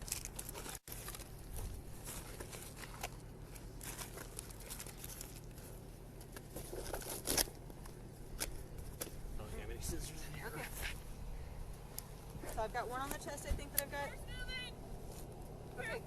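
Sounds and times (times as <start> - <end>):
rummaging and crinkling: 0.0 - 9.2
steady low hum: 0.0 - 16.0.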